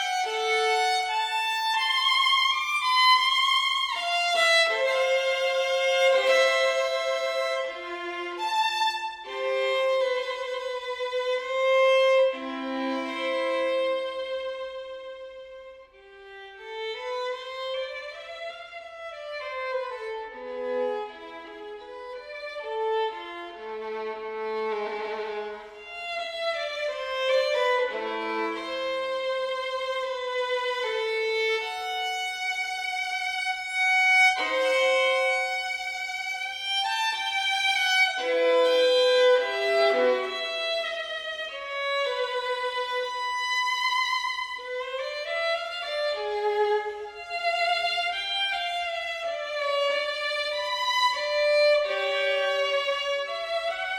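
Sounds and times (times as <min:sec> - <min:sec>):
violin playing slow melody: 0:00.0 - 0:53.9.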